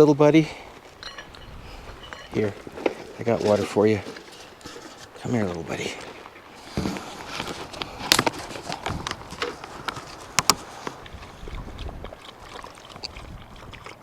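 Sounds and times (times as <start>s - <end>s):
dog lapping water: 0.5s - 14.0s
handling clicks and scuffs: 6.0s - 11.0s.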